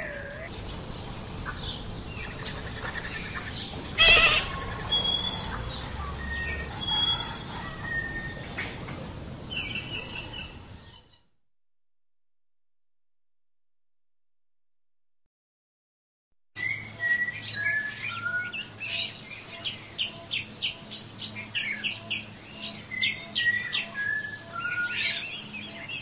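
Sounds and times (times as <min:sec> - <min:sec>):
songbirds chirping: 0:00.0 - 0:11.3, 0:16.6 - 0:26.0
rasping bird call: 0:04.0 - 0:05.3.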